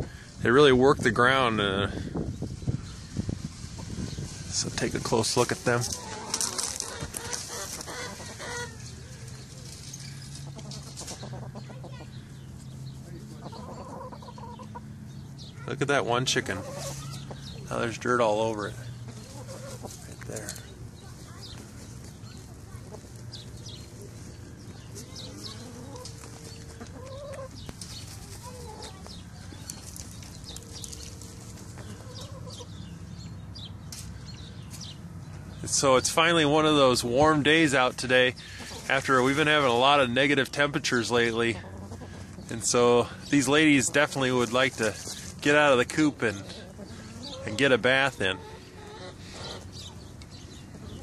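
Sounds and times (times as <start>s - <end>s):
hens clucking: 0.0s - 33.3s, 35.7s - 51.0s
dirt rustling: 0.4s - 13.6s, 16.3s - 51.0s
hens clucking softly: 5.8s - 9.5s, 10.4s - 12.5s, 13.1s - 14.9s, 18.9s - 20.6s, 25.0s - 32.8s, 41.5s - 42.4s, 46.2s - 50.1s.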